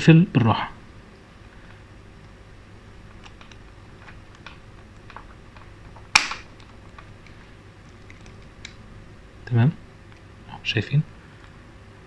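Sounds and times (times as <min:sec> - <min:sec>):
plastic key fob case handled: 0:03.1 - 0:08.8
plastic cover snapping shut: 0:03.3 - 0:07.2.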